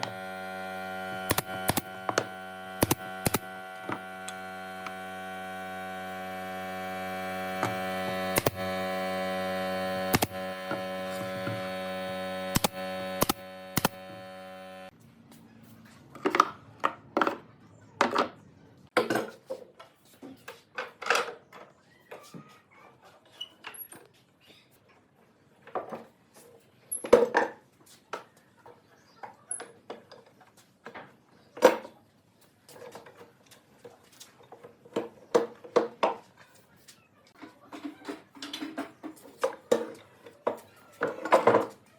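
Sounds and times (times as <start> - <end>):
power tool motor humming: 0.0 - 14.9
sharp clicks: 1.2 - 3.5, 7.6 - 8.6, 10.1 - 10.4, 12.5 - 14.1.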